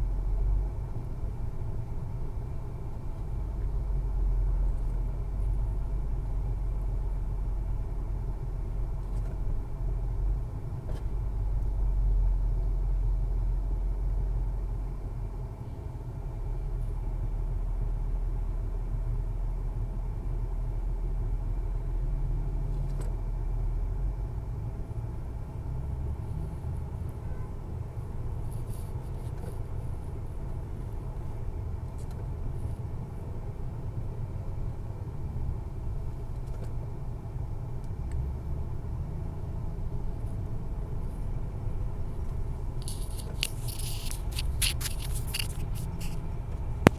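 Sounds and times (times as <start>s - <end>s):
scraping and crackling noises: 42.1s - 46.9s.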